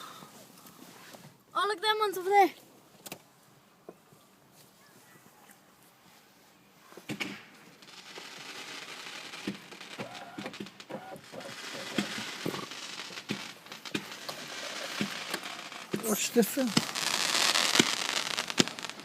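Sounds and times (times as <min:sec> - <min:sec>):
fireworks crackling hiss: 0:07.0 - 0:19.0
fireworks popping: 0:07.0 - 0:19.0.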